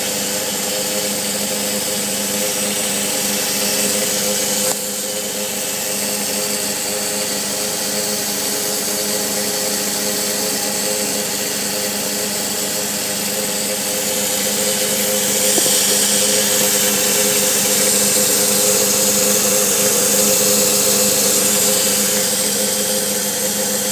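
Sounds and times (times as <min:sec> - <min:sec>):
fuel pump mechanical buzz: 0:00.0 - 0:23.9.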